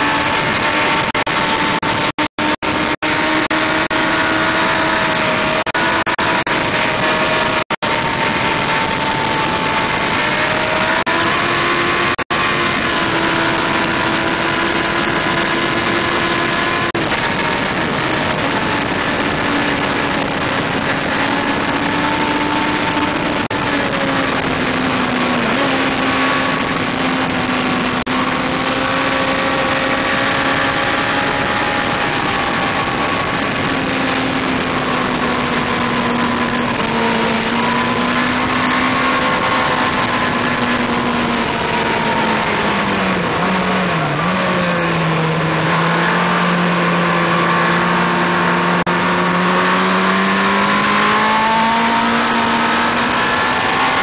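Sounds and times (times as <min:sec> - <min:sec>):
motorcycle engine at high revs: 0:00.0 - 0:54.0
wind rush over microphone: 0:00.0 - 0:54.0.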